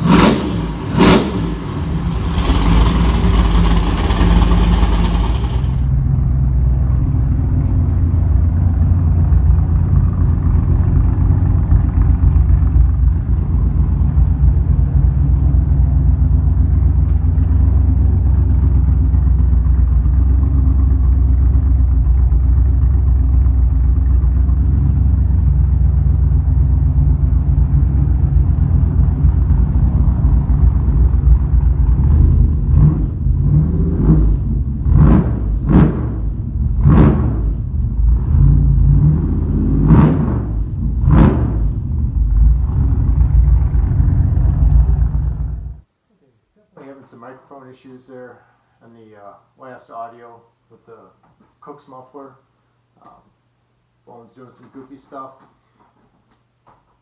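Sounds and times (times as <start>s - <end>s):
car engine revving: 0.0s - 6.1s, 24.7s - 45.8s
car engine idling rumble: 0.0s - 33.6s, 40.5s - 45.9s.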